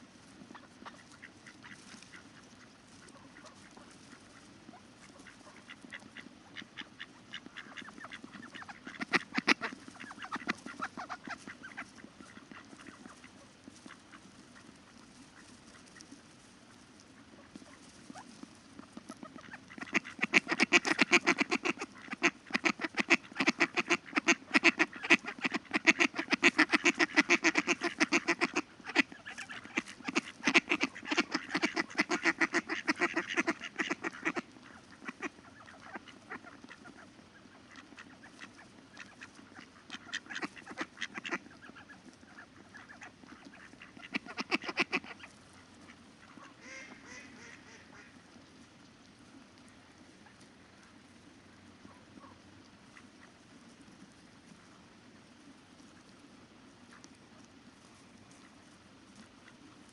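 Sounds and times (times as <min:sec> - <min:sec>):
ducks quacking: 0:00.5 - 0:16.2, 0:17.3 - 0:48.4.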